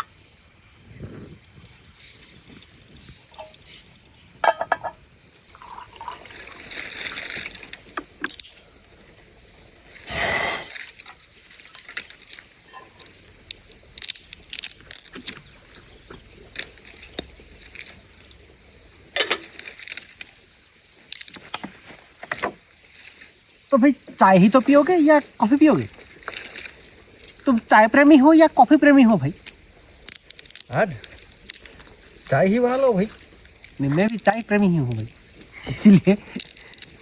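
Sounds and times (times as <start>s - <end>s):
insect chirring: 0.0s - 37.0s
light clinks and knocks: 4.4s - 5.0s
water trickling and splashing: 5.2s - 10.1s.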